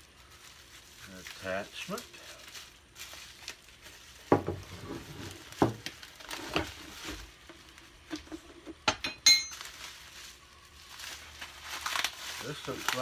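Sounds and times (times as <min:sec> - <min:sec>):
sharp ringing metal clink: 0:09.0 - 0:09.6.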